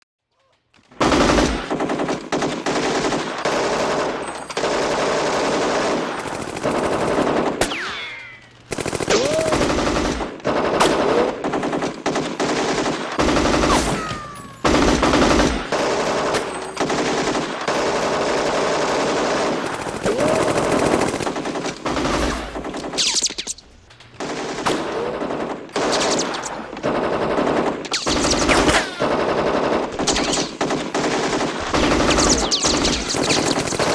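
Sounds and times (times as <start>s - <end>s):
automatic machine-gun fire: 1.0s - 23.2s, 24.2s - 33.9s.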